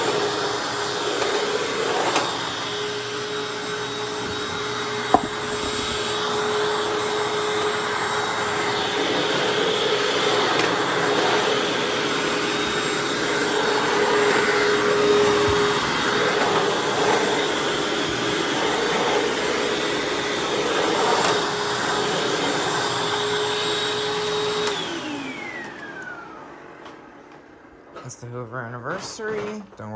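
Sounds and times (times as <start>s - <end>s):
vacuum cleaner motor whine: 0.0s - 29.7s.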